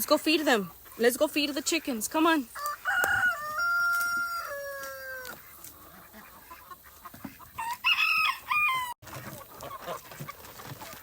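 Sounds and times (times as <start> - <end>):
rooster crowing: 2.6 - 5.4, 7.6 - 9.0.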